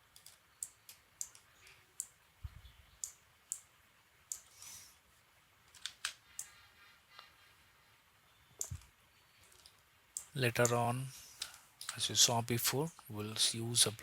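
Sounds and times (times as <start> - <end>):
computer mouse clicking: 0.0 - 2.2, 3.0 - 3.7, 4.3 - 4.8, 5.6 - 6.6, 8.6 - 10.8.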